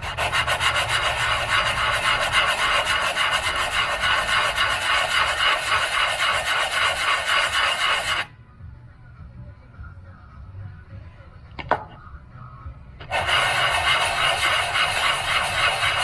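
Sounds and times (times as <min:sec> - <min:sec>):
metal rasping on sandpaper: 0:00.0 - 0:08.3, 0:13.1 - 0:16.0.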